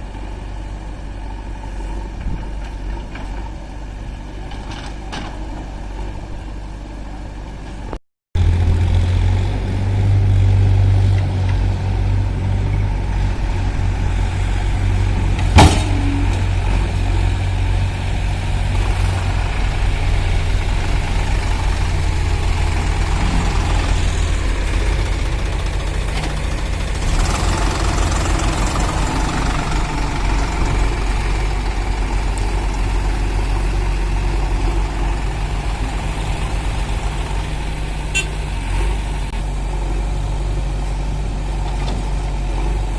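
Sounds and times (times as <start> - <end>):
heavy diesel engines running: 0.0 - 42.9.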